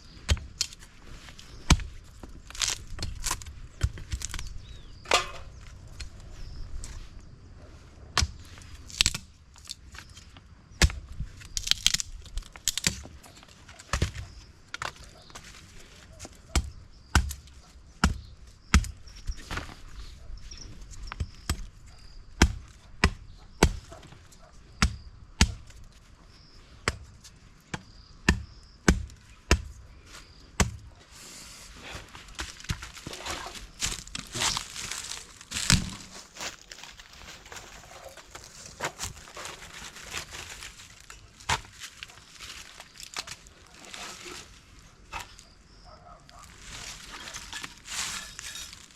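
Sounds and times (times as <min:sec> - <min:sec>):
rustling: 0:31.1 - 0:45.4
blade chopping wood: 0:32.4 - 0:36.1.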